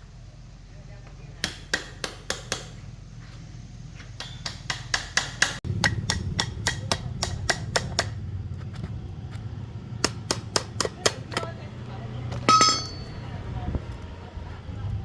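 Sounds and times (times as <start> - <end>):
hammer tapping on metal: 4.2 - 8.2, 12.4 - 13.2.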